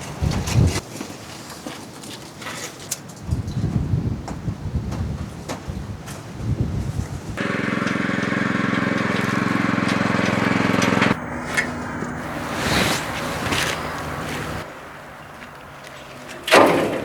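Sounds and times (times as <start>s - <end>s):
engine running: 7.4s - 15.6s.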